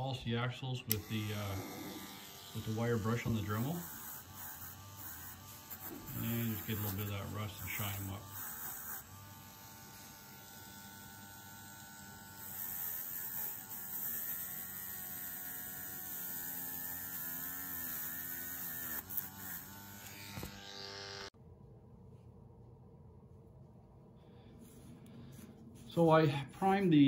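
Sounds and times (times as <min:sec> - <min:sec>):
rotary tool wire brush running: 0:00.9 - 0:21.3.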